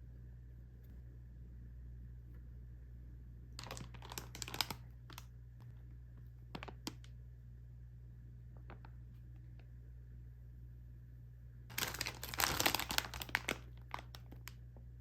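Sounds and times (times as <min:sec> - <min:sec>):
low steady hum: 0:00.0 - 0:15.0
plastic packaging crinkling: 0:03.6 - 0:05.3, 0:06.4 - 0:07.1, 0:11.7 - 0:14.6.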